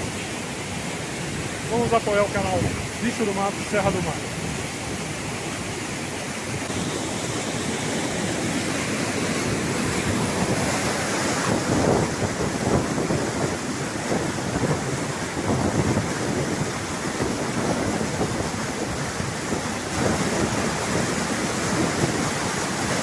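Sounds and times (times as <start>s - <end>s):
water rushing: 0.0s - 23.0s
wind buffeting microphone: 0.0s - 23.0s.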